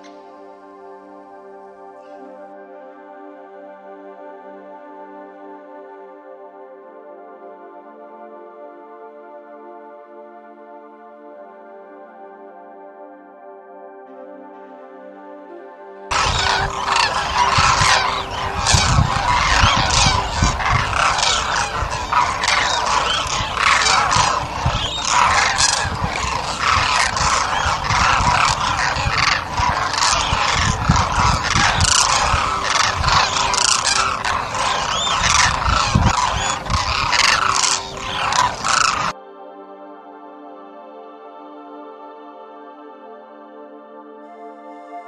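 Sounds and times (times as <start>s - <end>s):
flock of birds calling: 16.1s - 39.2s.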